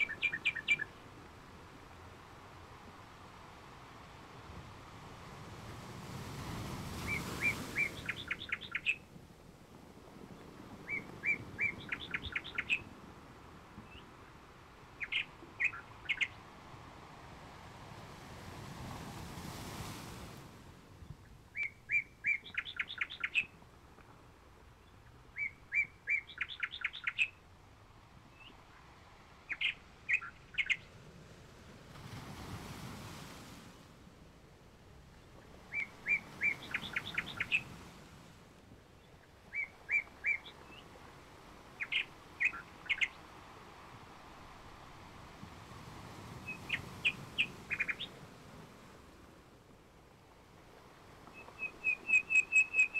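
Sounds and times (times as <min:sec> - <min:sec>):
songbird chirping: 0:00.0 - 0:01.2, 0:07.0 - 0:09.1, 0:10.4 - 0:12.9, 0:14.9 - 0:16.5, 0:21.0 - 0:23.6, 0:24.7 - 0:27.5, 0:28.3 - 0:30.9, 0:35.4 - 0:37.8, 0:39.0 - 0:44.0, 0:46.3 - 0:48.2, 0:51.2 - 0:52.9.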